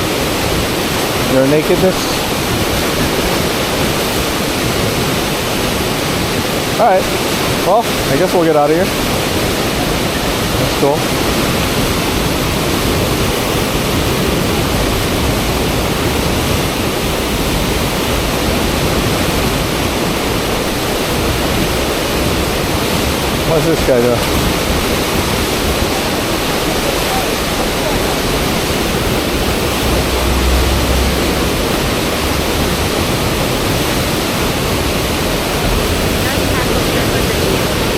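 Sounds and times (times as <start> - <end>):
fast river water rushing: 0.0 - 37.9
low rumble: 24.3 - 37.9.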